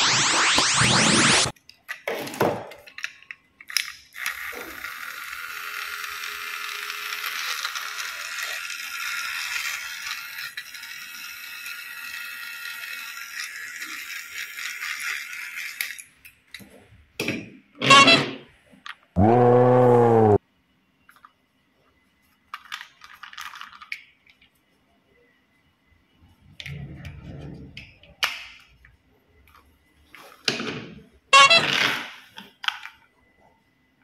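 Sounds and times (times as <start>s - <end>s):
rising swoosh effect: 0.0s - 1.5s
toy train whirring and rattling: 2.9s - 16.5s, 22.5s - 24.0s, 31.4s - 31.7s
clicks and clatters: 22.5s - 24.6s.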